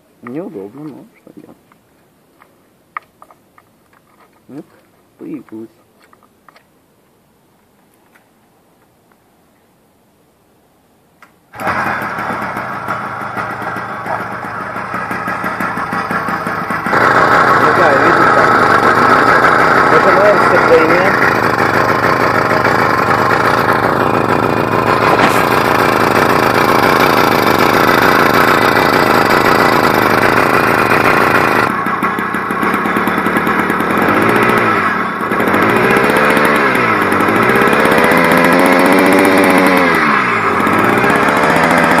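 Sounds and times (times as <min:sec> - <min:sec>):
two-stroke engine revving: 0:11.6 - 0:42.0.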